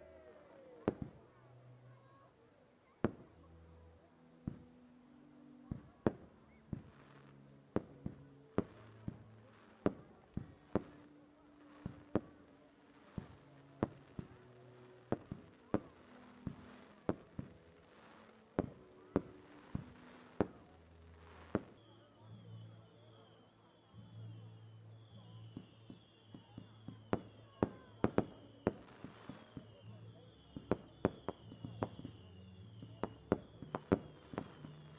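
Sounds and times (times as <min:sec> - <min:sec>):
fireworks banging: 0:07.8 - 0:21.9, 0:25.5 - 0:34.9.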